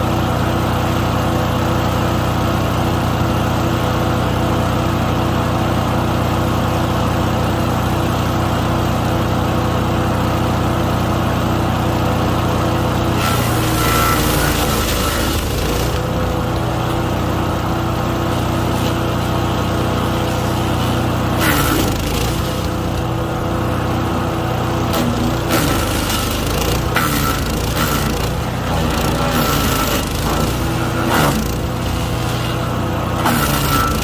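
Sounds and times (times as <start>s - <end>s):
wood chipper engine running: 0.0s - 34.0s
hissing shredding noise: 25.0s - 34.0s.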